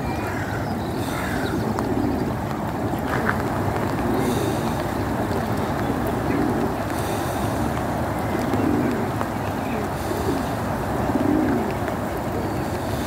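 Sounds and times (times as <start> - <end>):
heavy rain: 0.0 - 13.0
wind buffeting microphone: 0.0 - 13.0.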